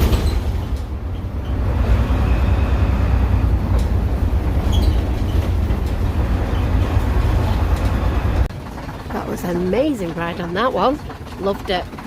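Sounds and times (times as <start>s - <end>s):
bus engine and road rumble: 0.0s - 12.0s
faint rattles: 3.7s - 12.0s.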